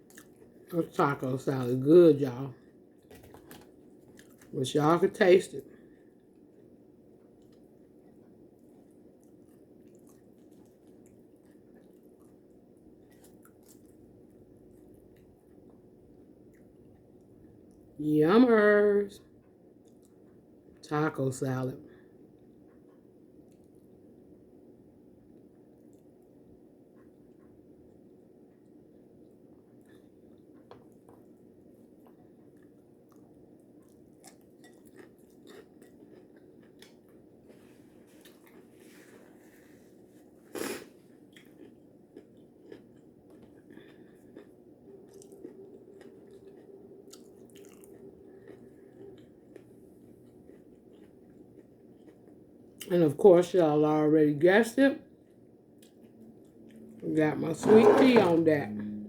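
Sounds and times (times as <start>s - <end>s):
person chewing food: 0.0s - 0.6s, 3.0s - 4.6s, 5.8s - 17.9s, 19.4s - 20.5s, 26.9s - 52.9s, 55.1s - 57.0s
low room hum: 0.0s - 59.0s.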